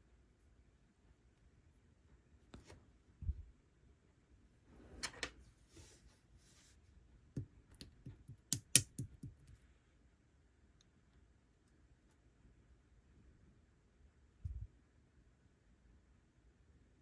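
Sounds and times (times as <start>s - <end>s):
sticky slime clicks and pops: 7.8s - 9.3s.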